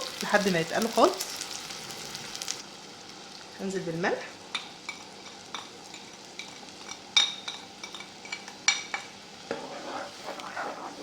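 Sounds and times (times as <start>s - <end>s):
sizzling in a pot: 0.0s - 11.0s
spoon scraping pot: 9.5s - 11.0s
spoon stirring liquid: 9.5s - 11.0s.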